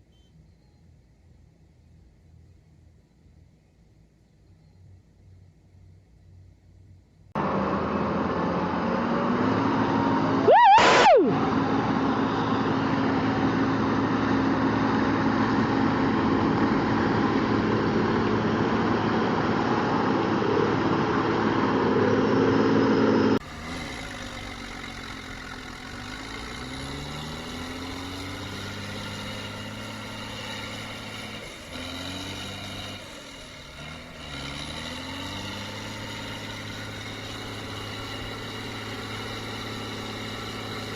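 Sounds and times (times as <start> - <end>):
engine revving: 7.4 - 40.9
tractor engine running: 7.4 - 40.9
loud high tone: 10.2 - 12.8.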